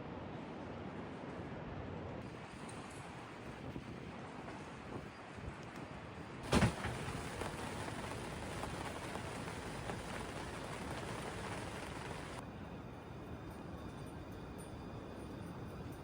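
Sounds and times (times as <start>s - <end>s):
rain patter: 6.4s - 12.4s
sharp thump: 6.5s - 8.2s.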